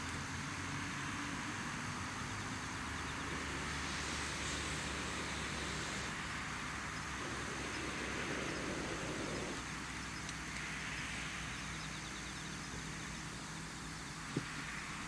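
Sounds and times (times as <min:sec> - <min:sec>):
soft hiss: 0:01.7 - 0:15.0
low hum: 0:07.0 - 0:09.6.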